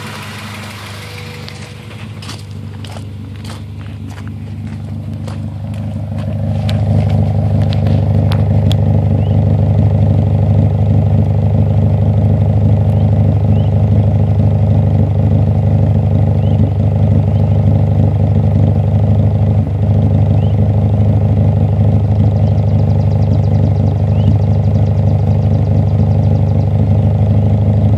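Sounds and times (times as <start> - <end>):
engine clicks: 0.0 - 10.0
car engine idling: 0.0 - 27.9
engine misfire stutter: 0.0 - 27.9.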